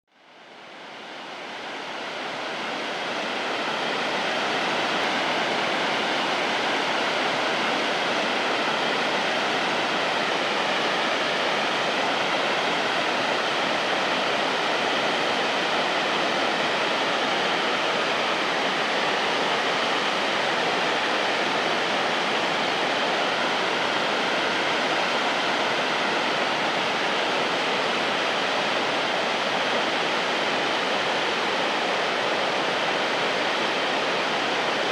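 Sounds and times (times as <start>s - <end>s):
waterfall roaring: 0.4s - 34.9s.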